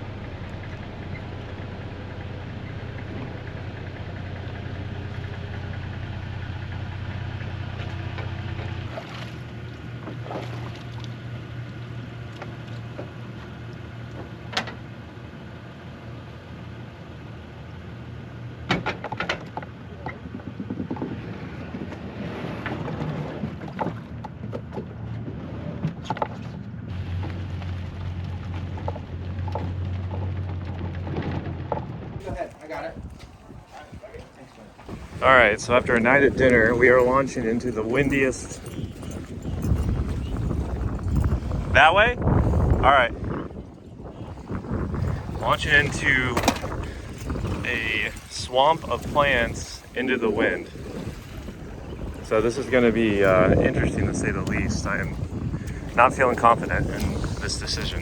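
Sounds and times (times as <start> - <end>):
water lapping: 0.0 - 15.0, 32.2 - 58.0
low motor hum: 0.0 - 58.0
wind: 0.0 - 58.0
sharp knocks on kayak: 46.4 - 47.5.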